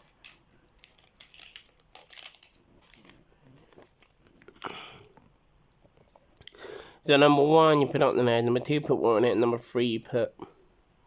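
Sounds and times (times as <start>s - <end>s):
packaging crinkling and rustling: 0.0s - 4.6s.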